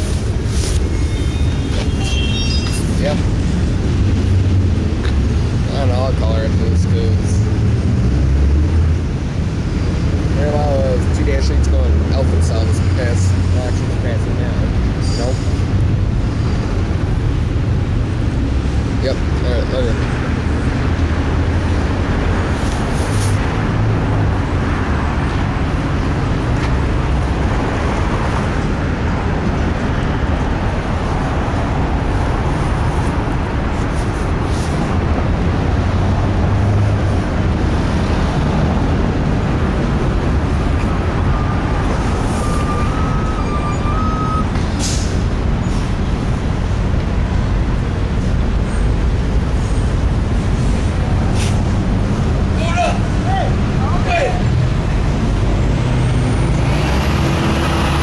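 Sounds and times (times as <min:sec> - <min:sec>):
faint thin squeal: 0:00.9 - 0:02.9.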